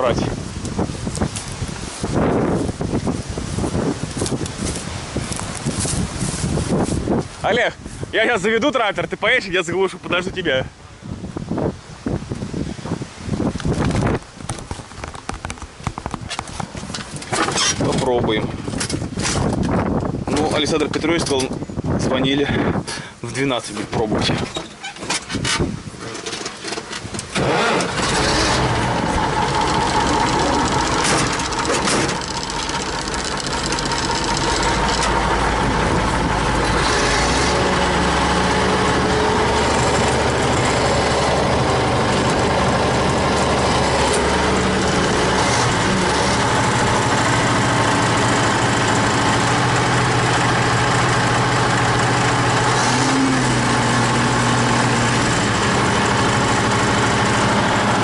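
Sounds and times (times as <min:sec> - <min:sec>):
tractor diesel engine running: 0:25.8 - 0:58.0.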